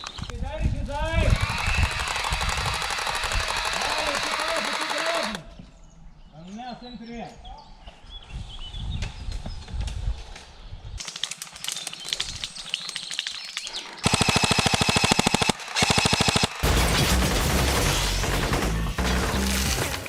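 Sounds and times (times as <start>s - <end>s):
airsoft rifle firing: 1.5s - 5.4s, 14.0s - 20.0s.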